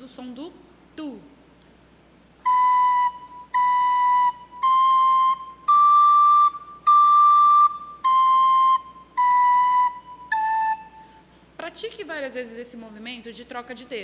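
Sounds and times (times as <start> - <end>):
recorder playing tongued notes: 2.4 - 11.2.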